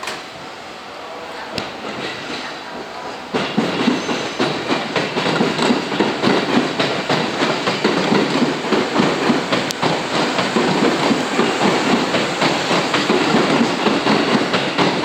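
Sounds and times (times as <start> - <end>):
electric train rumbling: 0.0 - 15.0
wheels clicking over rail joints: 3.3 - 15.0.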